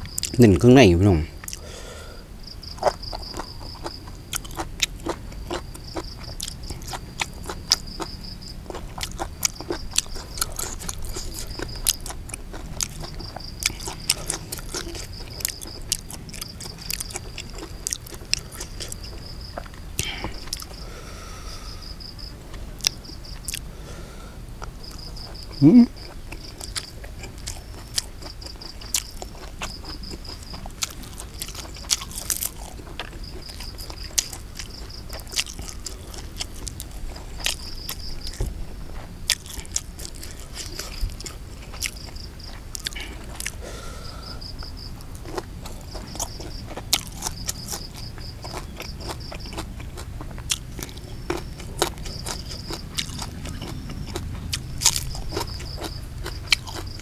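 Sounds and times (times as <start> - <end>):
person chewing crunchy food: 0.0 - 57.0
insect trilling: 39.3 - 50.0.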